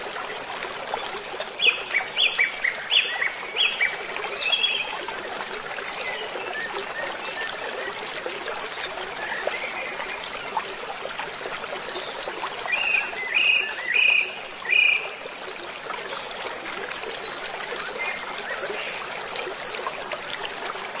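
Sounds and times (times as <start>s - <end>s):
rushing water: 0.0s - 21.0s.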